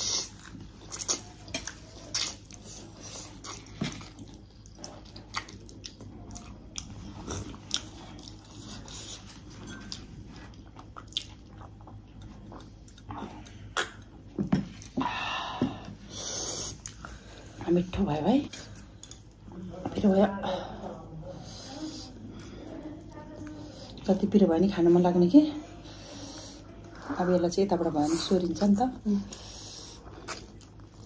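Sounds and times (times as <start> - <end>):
person chewing food: 0.0 - 17.6, 18.6 - 19.6, 29.3 - 31.0
mouth clicks and smacks: 13.7 - 14.1.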